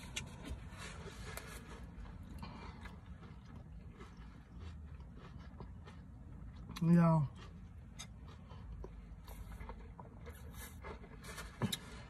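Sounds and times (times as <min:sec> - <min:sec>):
faint chewing: 0:00.0 - 0:12.0
low hum inside car: 0:00.0 - 0:12.0.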